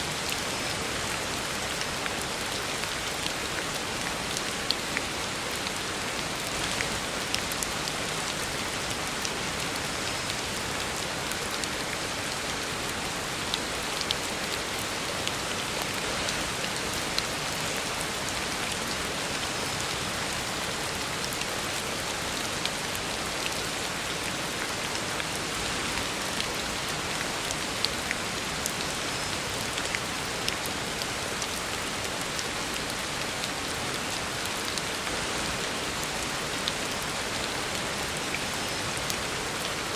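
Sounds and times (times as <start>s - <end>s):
heavy rain on a road: 0.0s - 39.9s.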